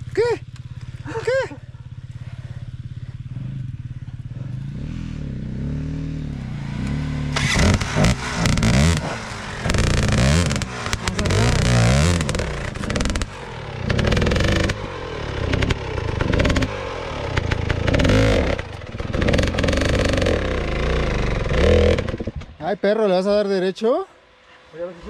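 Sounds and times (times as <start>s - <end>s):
dirt bike engine revving: 0.0s - 23.5s.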